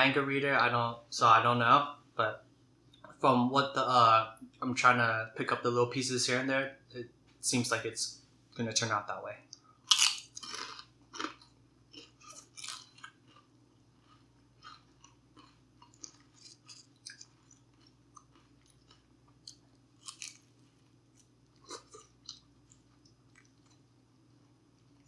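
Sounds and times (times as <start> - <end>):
person chewing: 9.9 - 23.9.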